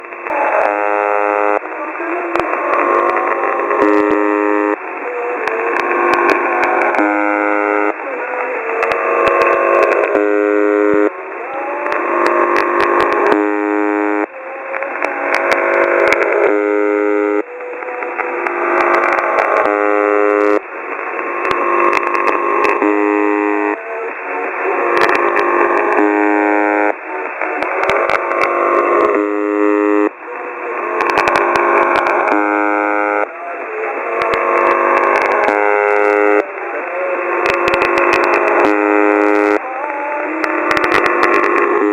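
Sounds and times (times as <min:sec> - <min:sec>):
many steady tones together: 0:00.0 - 0:41.9
radio static crackles: 0:00.0 - 0:41.9
warbling radio noise: 0:00.0 - 0:41.9.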